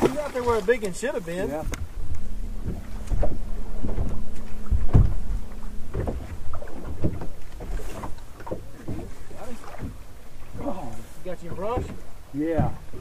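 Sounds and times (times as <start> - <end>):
low rumble: 0.0 - 8.8
steady low hum: 0.0 - 13.0
waves slapping against boat hull: 0.0 - 13.0.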